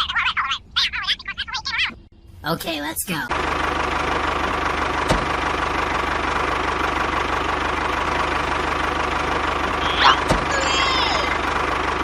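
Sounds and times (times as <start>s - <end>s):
engine running with knocking beat: 3.3s - 12.0s.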